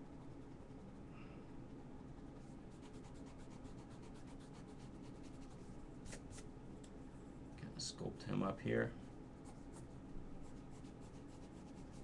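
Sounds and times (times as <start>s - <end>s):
steady low hum: 0.0s - 12.0s
pen strokes scratching: 9.4s - 12.0s.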